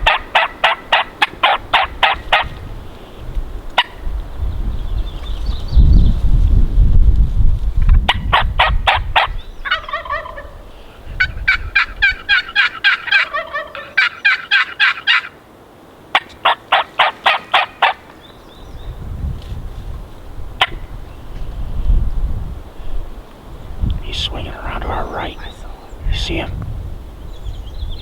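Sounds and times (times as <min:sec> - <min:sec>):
turkeys gobbling: 0:00.0 - 0:02.5, 0:08.3 - 0:10.6, 0:11.2 - 0:15.4, 0:16.1 - 0:18.0
wind rumble on microphone: 0:00.0 - 0:12.6, 0:18.3 - 0:28.0.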